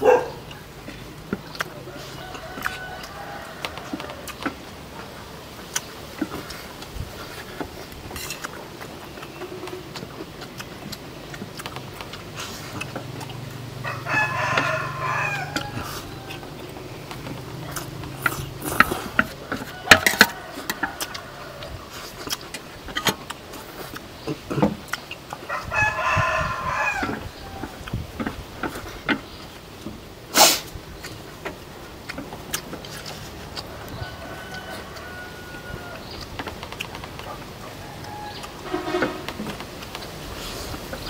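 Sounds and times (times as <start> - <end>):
bird crowing call: 13.8 - 22.1, 25.5 - 28.0, 33.7 - 36.2, 37.6 - 39.5
sharp clicks and knocks: 16.6 - 21.1, 36.1 - 37.6, 38.3 - 41.0.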